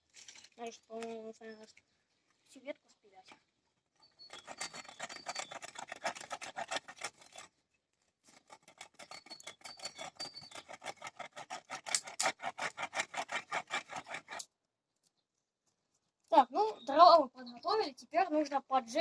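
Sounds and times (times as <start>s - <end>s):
hand saw cutting wood: 4.1s - 7.6s, 8.2s - 14.5s.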